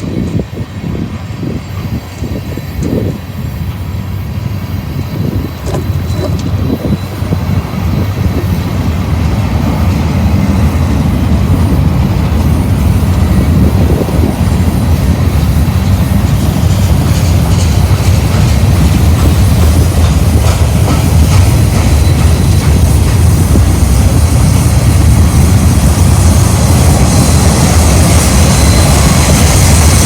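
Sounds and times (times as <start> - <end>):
freight train wheels clacking: 0.0 - 30.0.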